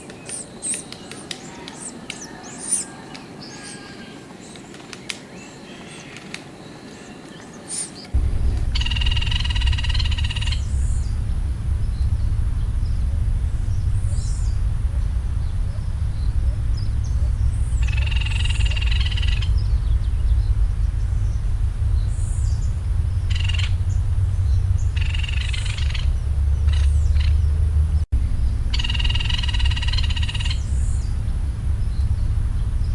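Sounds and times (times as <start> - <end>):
woodpecker calling: 8.2 - 27.7, 28.7 - 32.2
steady low rumble: 8.2 - 32.9.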